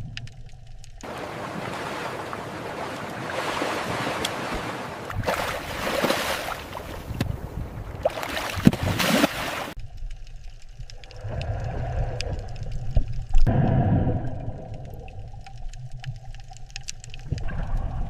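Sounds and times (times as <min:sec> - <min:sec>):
rushing sea water: 0:01.0 - 0:09.8.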